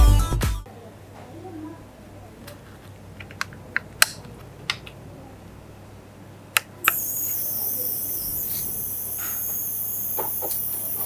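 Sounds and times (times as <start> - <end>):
small fan hissing and whining: 6.8 - 11.0.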